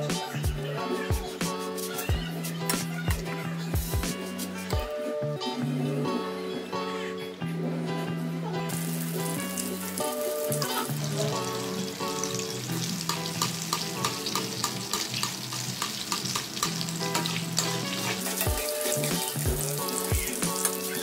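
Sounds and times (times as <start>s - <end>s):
background music with held notes: 0.0s - 21.0s
thudding beat: 3.8s - 4.2s
omelette sizzling in hot oil: 8.7s - 21.0s.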